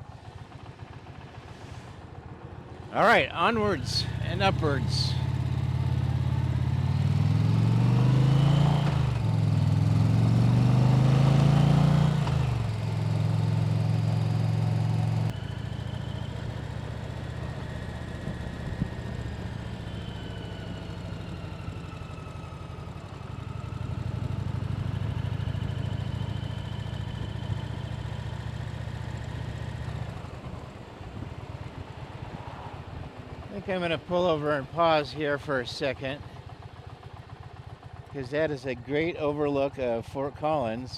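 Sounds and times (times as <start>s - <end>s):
motorcycle engine pulling away: 4.0s - 33.4s.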